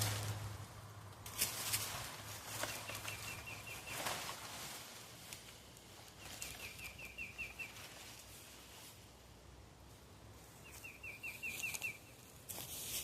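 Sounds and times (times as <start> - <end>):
rustling and crackling of materials: 0.0 - 9.0, 11.4 - 13.0
small bird chirping: 2.6 - 4.2, 6.2 - 7.9, 10.6 - 12.3.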